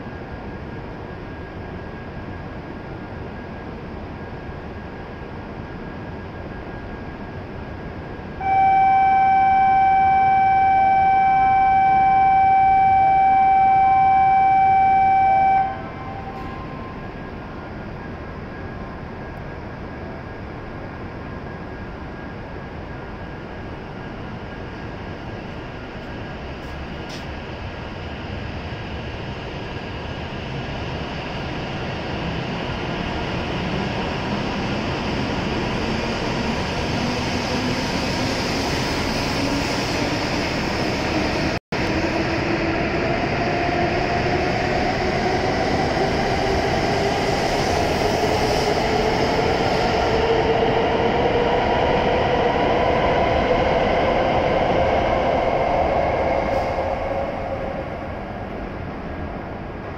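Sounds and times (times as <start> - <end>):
rumble of train cars: 0.0 - 59.9
train motor whine: 8.4 - 17.4.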